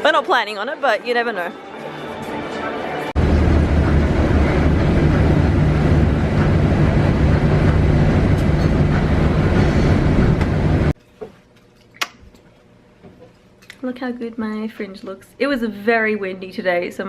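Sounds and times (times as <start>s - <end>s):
vehicle rumble with low hum: 3.2s - 11.0s.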